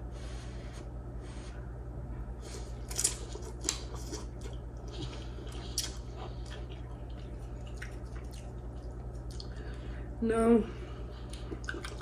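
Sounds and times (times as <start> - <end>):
low hum: 0.0 - 12.0
chewing noodles: 2.5 - 9.8, 11.1 - 12.0.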